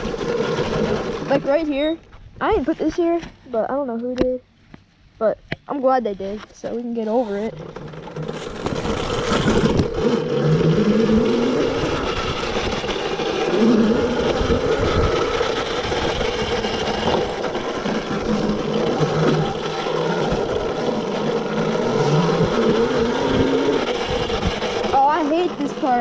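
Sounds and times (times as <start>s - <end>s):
electric motor whining: 0.0s - 1.9s, 7.0s - 26.0s
steady rushing noise: 8.1s - 26.0s.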